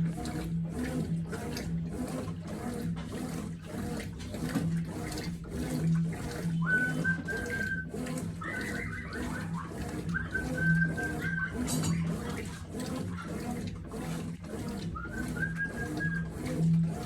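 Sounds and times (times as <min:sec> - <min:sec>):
washing machine sloshing water: 0:00.0 - 0:17.0
high whistle-like tone: 0:06.6 - 0:09.3.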